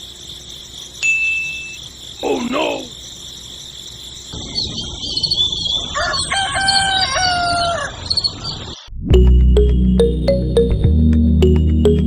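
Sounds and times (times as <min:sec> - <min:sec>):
small birds chirping: 0:00.0 - 0:08.9
rooster crowing: 0:05.8 - 0:08.2.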